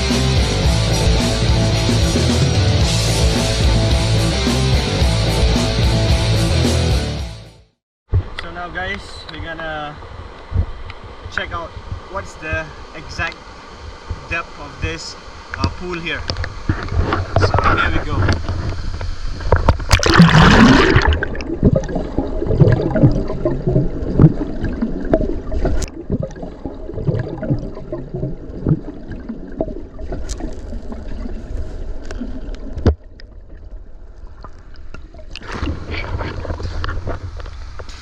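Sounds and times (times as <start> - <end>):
muffled underwater gurgling: 19.4 - 32.8
loud water splash: 19.8 - 31.6.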